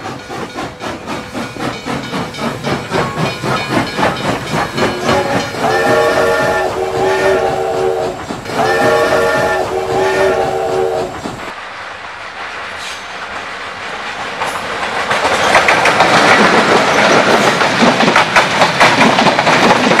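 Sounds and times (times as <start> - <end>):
train wheels clattering over rails: 0.0 - 20.0
train air horn chord: 5.0 - 11.2.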